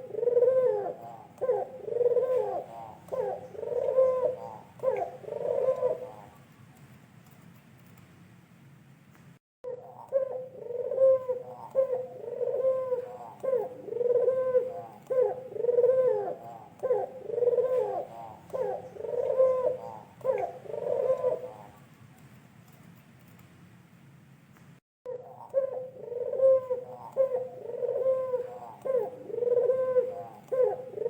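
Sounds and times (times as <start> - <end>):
dove cooing: 0.0 - 6.4, 9.7 - 21.8, 25.1 - 31.0.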